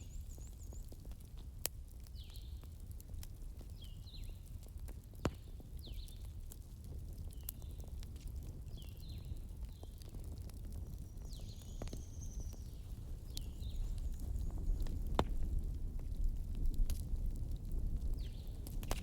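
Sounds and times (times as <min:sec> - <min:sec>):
wood fire crackling: 0:00.0 - 0:19.0
sharp pops of fire: 0:03.1 - 0:06.6, 0:13.3 - 0:19.0.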